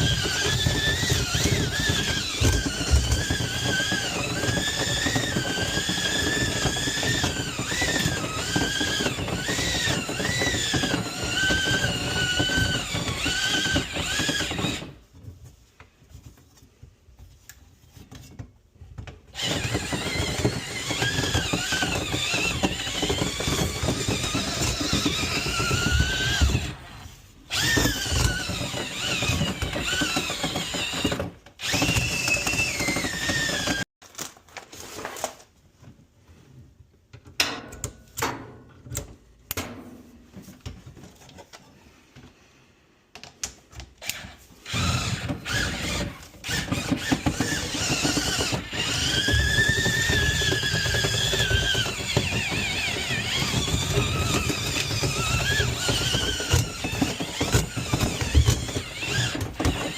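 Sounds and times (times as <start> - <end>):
power drill whining: 0.0 - 15.0, 19.3 - 33.9, 44.0 - 59.9.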